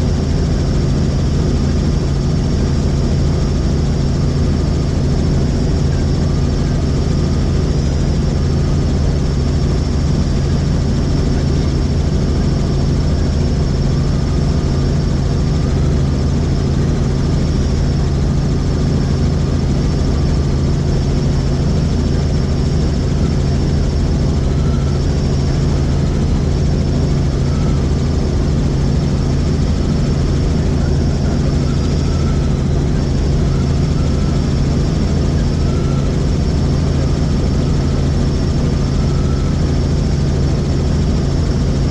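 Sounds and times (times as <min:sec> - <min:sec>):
helicopter rotor and engine: 0:00.0 - 0:41.9.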